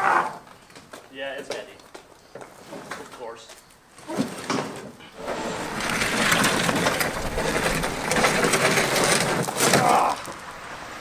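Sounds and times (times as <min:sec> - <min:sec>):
snowmobile scraping over gravel: 0:05.0 - 0:11.0.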